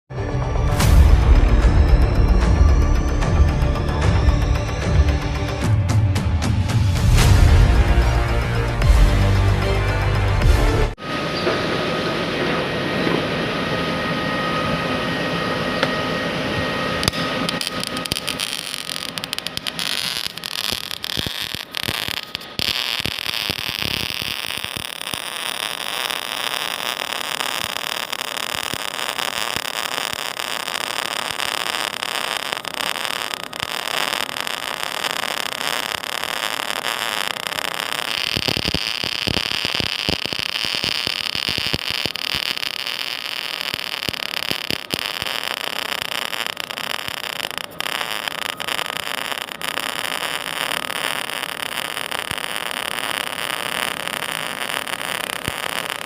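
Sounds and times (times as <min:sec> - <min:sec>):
welding arc hissing crackle: 0:17.0 - 0:56.0.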